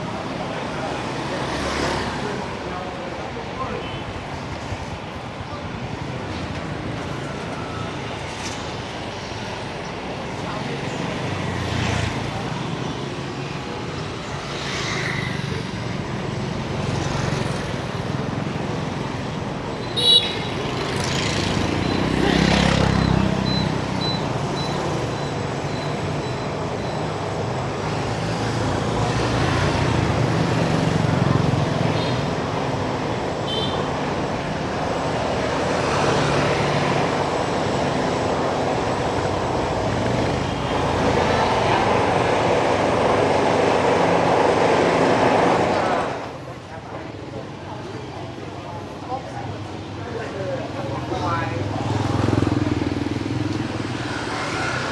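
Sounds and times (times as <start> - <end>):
street traffic passing: 0.0 - 54.9.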